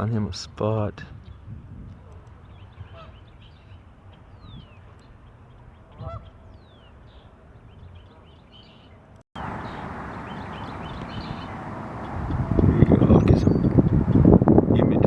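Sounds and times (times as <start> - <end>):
small birds chirping: 1.1 - 14.4
goose honking: 2.9 - 3.2, 5.9 - 6.3.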